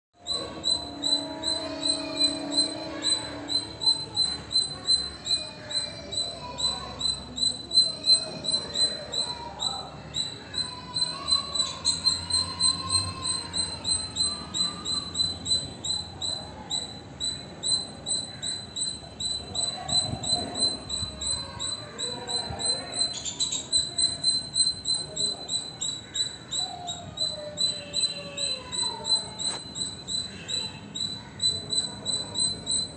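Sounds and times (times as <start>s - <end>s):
bird calling sharp high notes: 0.2s - 32.9s.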